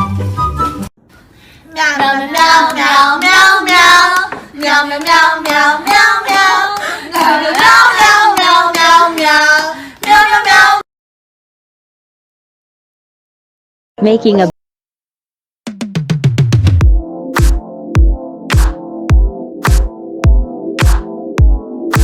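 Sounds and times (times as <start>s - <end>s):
burst of music: 15.9s - 22.0s.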